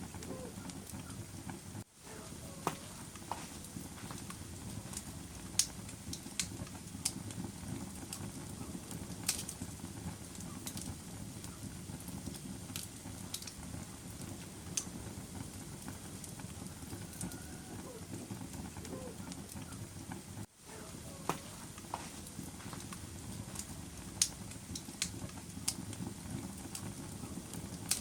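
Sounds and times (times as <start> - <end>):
fire flames rumbling: 0.0 - 28.0
wood fire crackling pops: 0.0 - 28.0.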